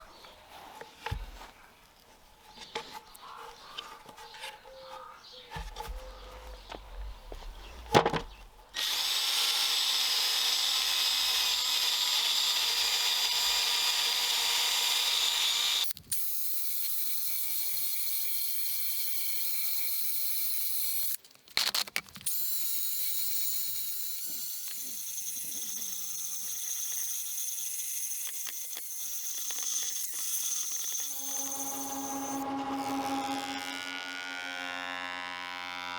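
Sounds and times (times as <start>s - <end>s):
power tool motor whine: 8.8s - 15.9s, 22.3s - 35.9s.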